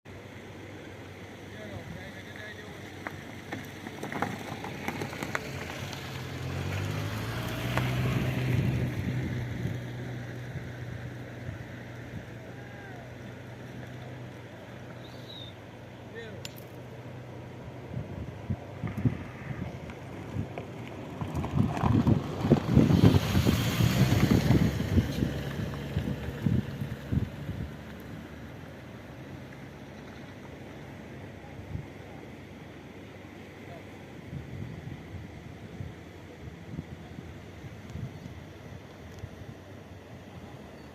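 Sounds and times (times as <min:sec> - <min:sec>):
wind buffeting microphone: 0:06.3 - 0:12.4, 0:17.7 - 0:28.4.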